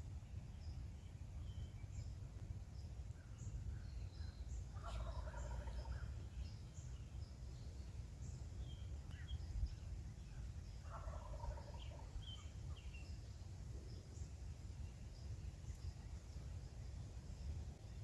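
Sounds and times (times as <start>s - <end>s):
turkey gobbling: 4.8s - 6.1s, 10.9s - 12.1s.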